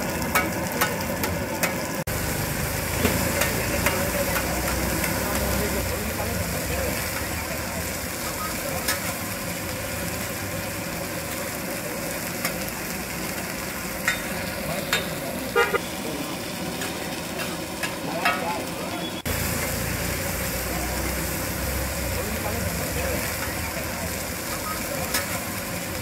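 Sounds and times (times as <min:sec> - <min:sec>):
food sizzling on a griddle: 0:00.0 - 0:26.0
spatula clinking and scraping: 0:03.0 - 0:05.6.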